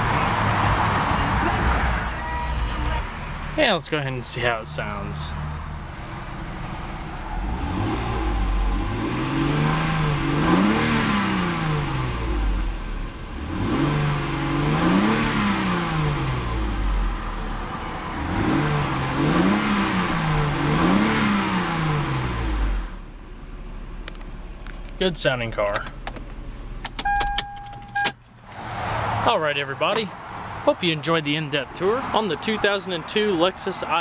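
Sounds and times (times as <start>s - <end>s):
car engine revving: 0.0s - 27.2s.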